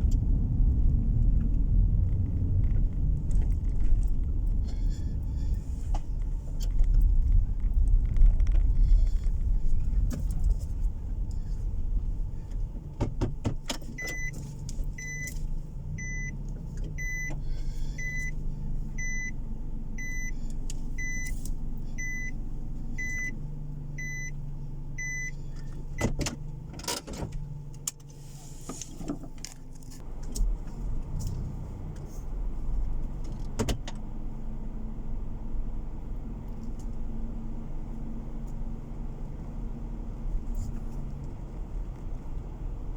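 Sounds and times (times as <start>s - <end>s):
road and engine rumble: 0.0s - 42.9s
electronic beep: 22.0s - 22.3s.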